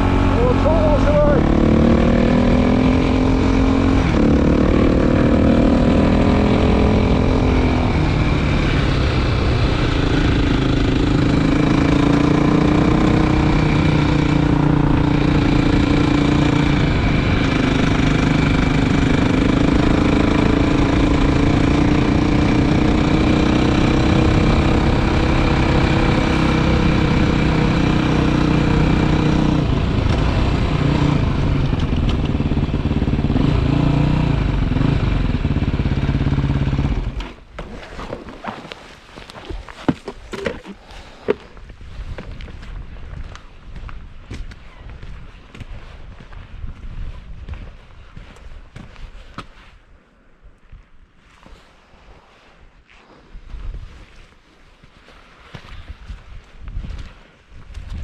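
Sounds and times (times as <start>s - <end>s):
motorcycle engine running: 0.0s - 37.2s
road and wind noise: 0.0s - 58.0s.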